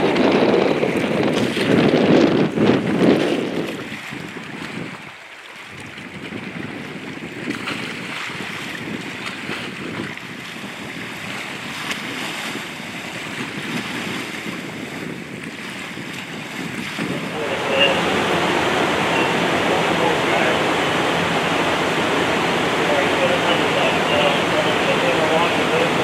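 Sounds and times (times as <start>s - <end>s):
wind noise on microphone: 0.0s - 26.0s
water rushing: 17.0s - 26.0s.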